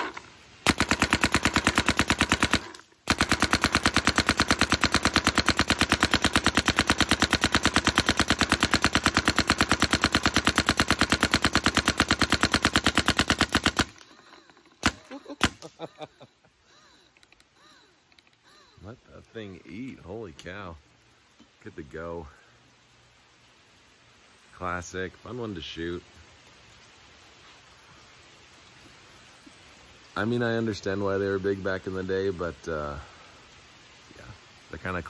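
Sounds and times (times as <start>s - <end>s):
paintball marker rapid fire: 0.6s - 15.6s.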